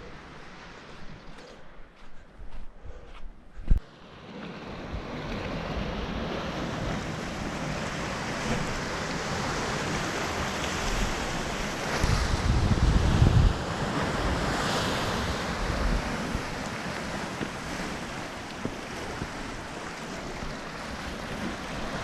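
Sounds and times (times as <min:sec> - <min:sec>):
ocean surf: 0:00.0 - 0:01.8, 0:03.8 - 0:22.0
wind: 0:00.0 - 0:22.0
wind buffeting microphone: 0:04.8 - 0:22.0.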